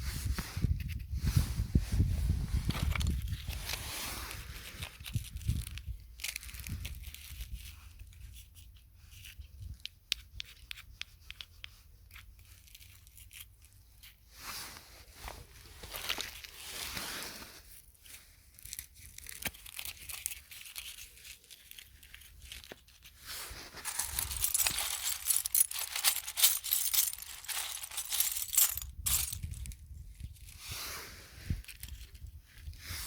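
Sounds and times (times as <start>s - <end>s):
dry rustling and crackling: 12.1s - 30.6s.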